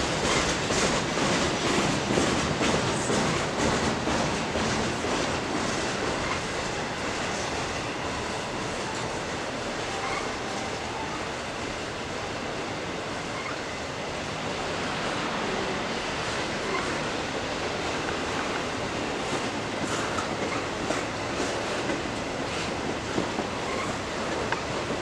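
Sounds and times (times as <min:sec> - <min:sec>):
train wheels clattering on rails: 0:00.0 - 0:11.8, 0:14.4 - 0:25.0
faint thin wheel squeal: 0:13.3 - 0:13.7, 0:23.6 - 0:24.0.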